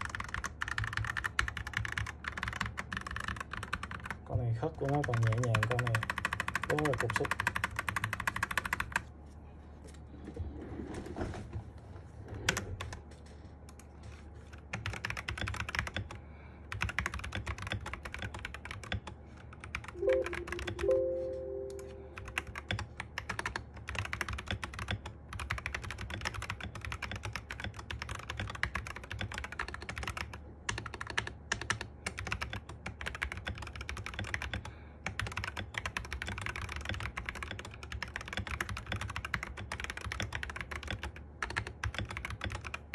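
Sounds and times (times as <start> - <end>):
two-note tone: 20.0 - 22.4.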